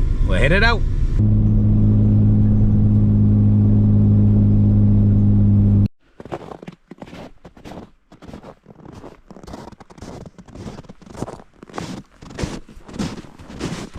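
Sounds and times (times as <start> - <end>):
vehicle cabin drone: 0.0 - 5.9
faint rustles and crunches: 6.2 - 13.9.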